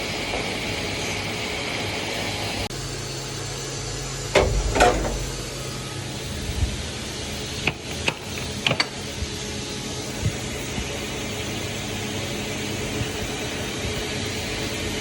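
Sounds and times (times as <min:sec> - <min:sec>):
machine humming: 0:00.0 - 0:15.0
loud mechanical clatter: 0:04.2 - 0:09.2
sharp clicks and knocks: 0:04.4 - 0:05.5.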